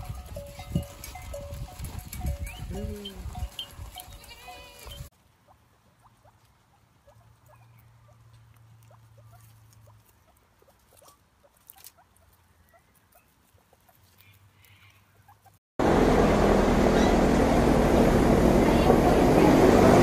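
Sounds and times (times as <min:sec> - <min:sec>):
small animals chirping: 0:08.8 - 0:15.6.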